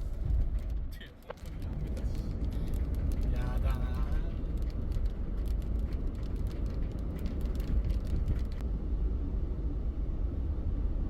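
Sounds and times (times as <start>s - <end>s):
road and engine rumble: 0.0s - 11.0s
raindrops ticking on car: 0.5s - 8.6s.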